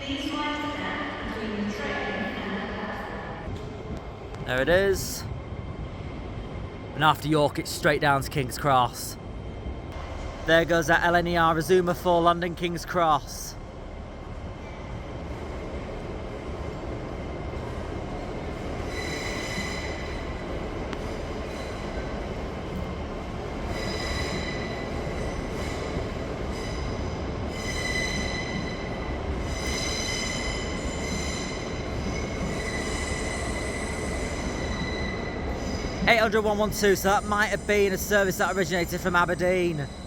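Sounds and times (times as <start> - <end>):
train low rumble: 0.0 - 40.0.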